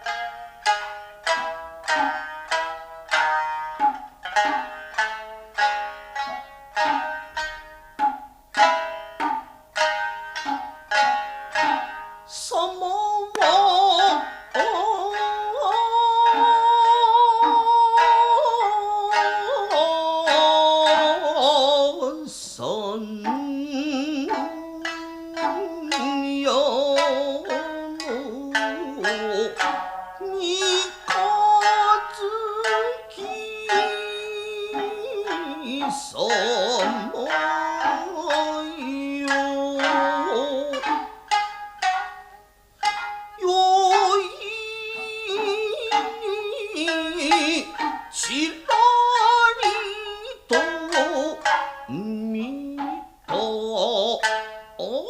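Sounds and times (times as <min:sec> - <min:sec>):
plucked shamisen: 0:00.0 - 0:55.0
person singing long held notes: 0:11.6 - 0:41.4, 0:43.4 - 0:55.0.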